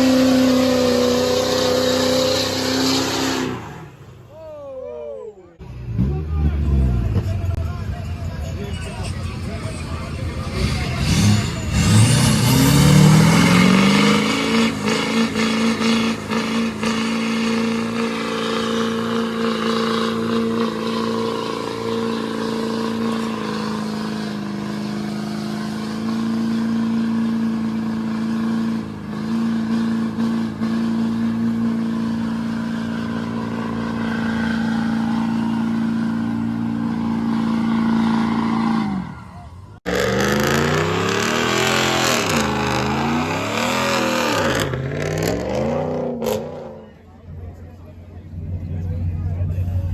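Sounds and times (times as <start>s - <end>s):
truck engine revving: 0.0s - 4.3s, 5.6s - 49.9s.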